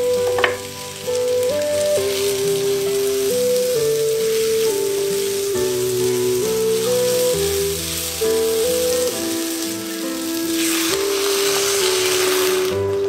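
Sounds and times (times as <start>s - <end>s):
background melody: 0.0s - 13.0s
food sizzling in a wok: 0.0s - 13.0s
water poured into hot pan: 0.0s - 13.0s.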